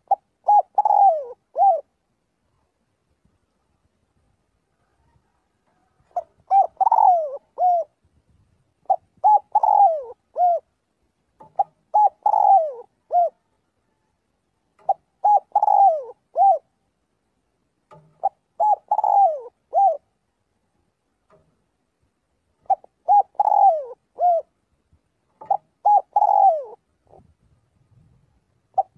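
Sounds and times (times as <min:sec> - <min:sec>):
dove cooing: 0:00.0 - 0:02.0, 0:04.8 - 0:08.0, 0:08.8 - 0:10.8, 0:11.4 - 0:14.1, 0:14.8 - 0:16.8, 0:17.9 - 0:20.2, 0:22.6 - 0:24.6, 0:25.3 - 0:27.3, 0:28.7 - 0:28.9.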